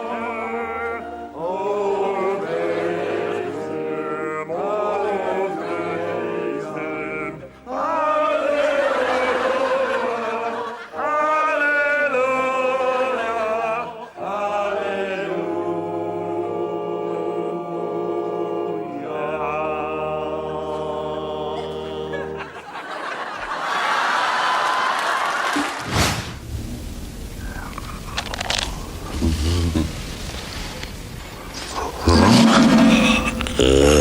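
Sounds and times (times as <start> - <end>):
choir singing a hymn: 0.0 - 24.5, 31.8 - 34.0.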